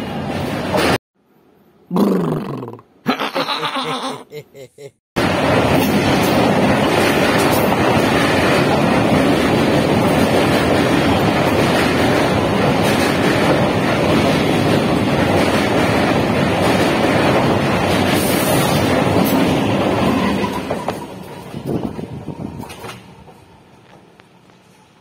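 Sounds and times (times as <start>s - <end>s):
train rumbling over steel bridge: 0.0s - 1.0s, 5.2s - 25.0s
wind noise on microphone: 5.5s - 23.2s.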